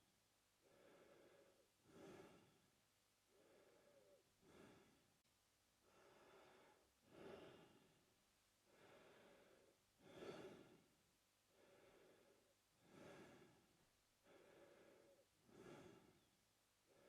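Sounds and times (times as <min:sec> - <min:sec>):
man breathing through mouth: 0:00.7 - 0:02.6, 0:08.7 - 0:10.8, 0:11.6 - 0:13.6, 0:14.2 - 0:16.3.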